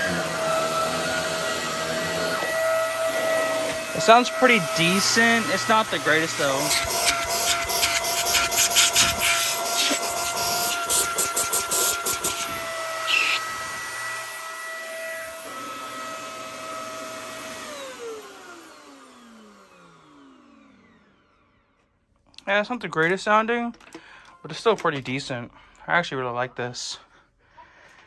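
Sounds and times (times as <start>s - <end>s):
vacuum cleaner motor whine: 0.0s - 21.8s.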